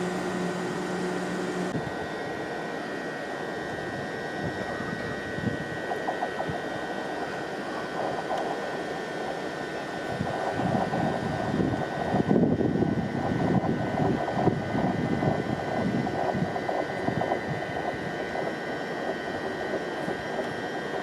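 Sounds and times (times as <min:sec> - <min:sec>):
train running past: 0:00.0 - 0:01.7
high whining tones: 0:00.0 - 0:11.6.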